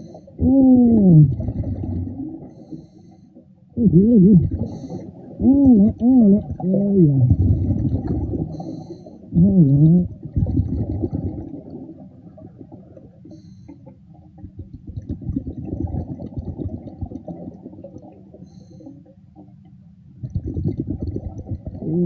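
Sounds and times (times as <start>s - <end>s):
underwater bubbling: 0.0s - 22.0s
muffled voice-like hum: 0.4s - 1.4s, 3.8s - 4.6s, 5.4s - 7.4s, 9.3s - 10.2s.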